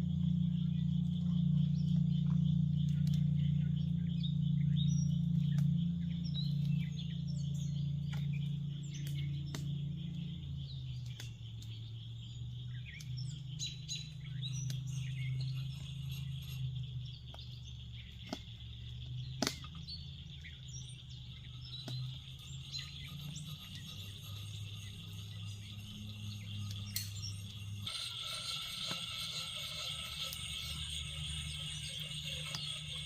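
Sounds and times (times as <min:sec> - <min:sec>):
high insect drone: 0:00.0 - 0:10.8, 0:11.4 - 0:33.0
birds chirping: 0:00.0 - 0:33.0
low steady hum: 0:00.0 - 0:33.0.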